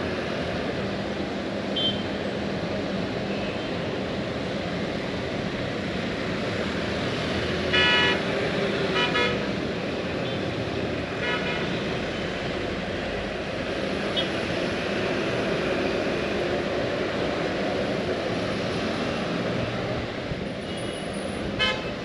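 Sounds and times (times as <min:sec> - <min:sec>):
road traffic noise: 0:00.0 - 0:22.0
vehicle horn tooting: 0:07.7 - 0:08.2.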